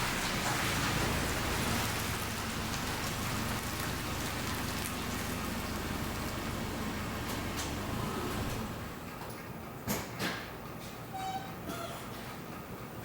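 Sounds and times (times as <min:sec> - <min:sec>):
low engine hum: 0:00.0 - 0:09.2
tyre and road noise: 0:00.0 - 0:10.4.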